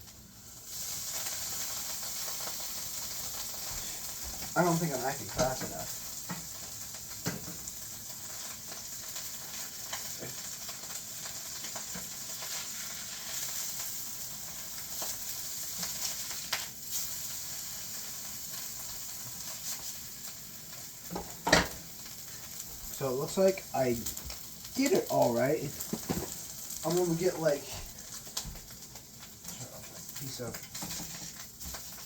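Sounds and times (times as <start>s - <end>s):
tortilla sizzling in hot oil: 0.0s - 32.0s.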